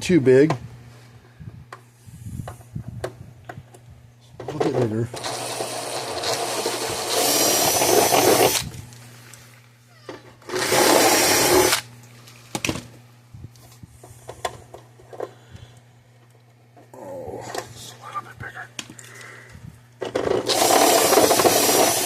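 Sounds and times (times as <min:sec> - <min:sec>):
power drill drilling: 0:05.2 - 0:08.6, 0:10.5 - 0:11.8, 0:20.2 - 0:22.0.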